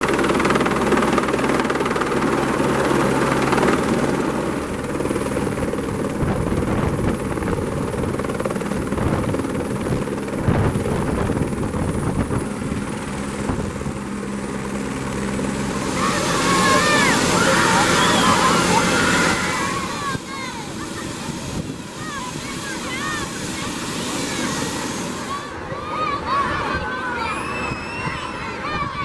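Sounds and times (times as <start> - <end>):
helicopter rotor and engine: 0.0 - 29.0
thin high whine: 15.6 - 28.6.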